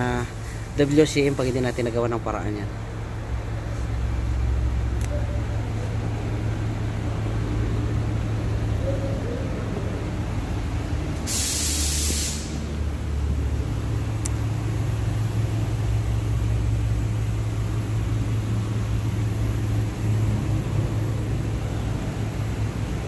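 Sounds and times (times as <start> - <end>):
car engine idling: 0.0 - 23.0
loud hissing burst: 11.2 - 12.8.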